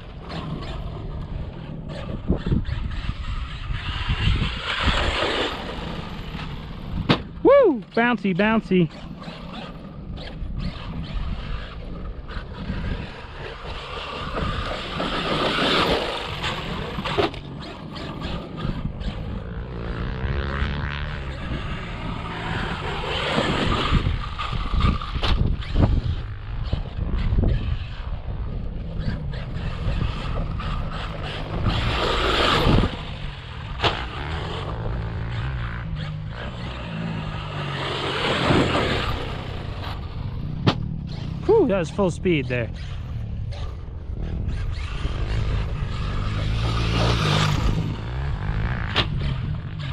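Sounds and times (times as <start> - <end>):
electric rc truck running: 0.0 - 49.9.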